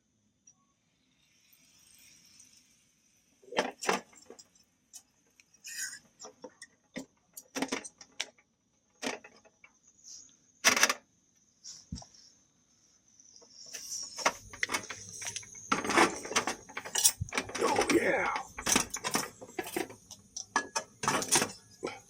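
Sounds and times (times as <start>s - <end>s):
hard objects clinking and knocking: 13.8s - 22.0s.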